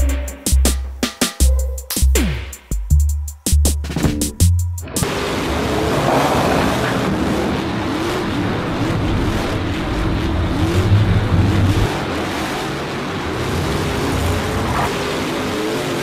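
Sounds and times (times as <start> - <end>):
steady engine rumble: 0.0 - 16.0
truck engines revving: 4.4 - 16.0.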